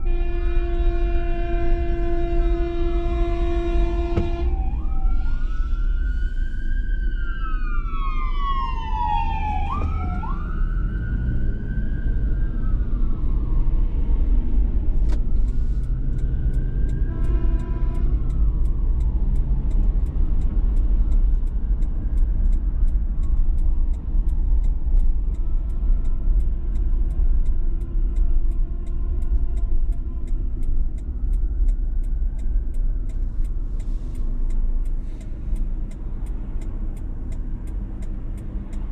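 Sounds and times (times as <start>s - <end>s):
siren wailing: 0.0s - 14.7s, 15.8s - 20.5s
low rumble of road noise: 0.0s - 38.9s
faint regular ticking: 18.2s - 38.9s.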